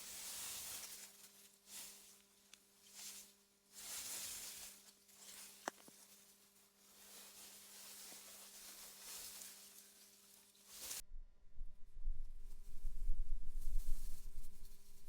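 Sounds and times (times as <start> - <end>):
faint steady hum: 0.0 - 15.0
soft wind through grass: 0.0 - 15.0.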